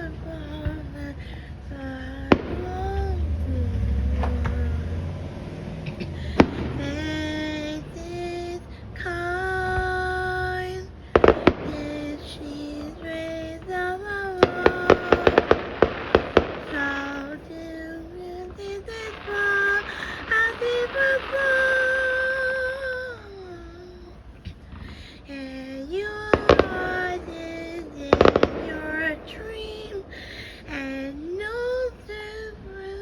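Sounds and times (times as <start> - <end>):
low rumble: 0.0 - 33.0
fireworks bangs: 2.3 - 3.2, 5.5 - 8.3, 11.2 - 22.8, 26.0 - 30.3
fireworks crackling pops: 2.3 - 3.2, 4.1 - 4.8, 5.8 - 8.5, 9.6 - 23.0, 24.4 - 33.0.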